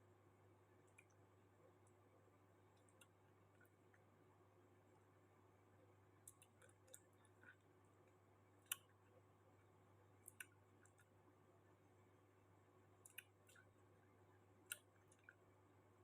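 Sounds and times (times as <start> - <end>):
faint clicks: 6.2 - 9.1.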